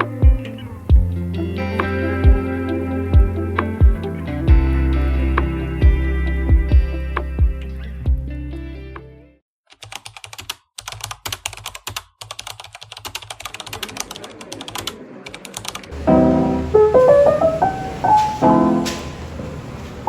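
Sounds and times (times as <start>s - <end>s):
background music: 0.0s - 8.3s, 16.0s - 19.2s
piano music: 1.5s - 6.4s, 16.0s - 20.0s
rapid irregular clicking: 9.8s - 16.0s.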